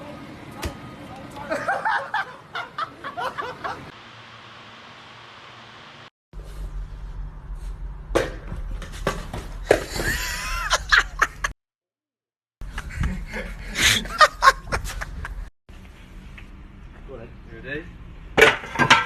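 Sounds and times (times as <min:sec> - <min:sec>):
people laughing: 0:01.4 - 0:03.9, 0:09.9 - 0:11.5, 0:12.7 - 0:15.4.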